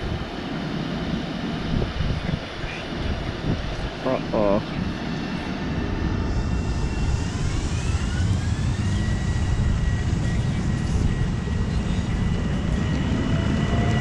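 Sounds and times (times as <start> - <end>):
electric train motor whine: 5.6 - 14.0
train wheels rumbling on rails: 6.2 - 14.0.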